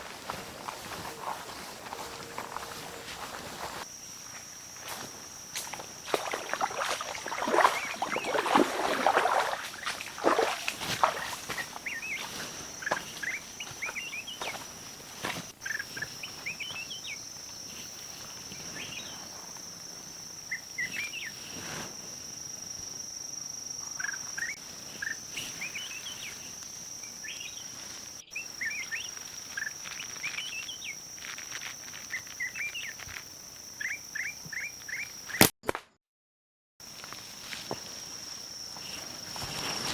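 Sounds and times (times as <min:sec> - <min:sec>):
footsteps rustling through undergrowth: 0:00.0 - 0:19.7, 0:24.6 - 0:33.2, 0:36.8 - 0:39.9
small birds chirping: 0:07.3 - 0:14.8, 0:15.6 - 0:19.3, 0:23.8 - 0:35.4.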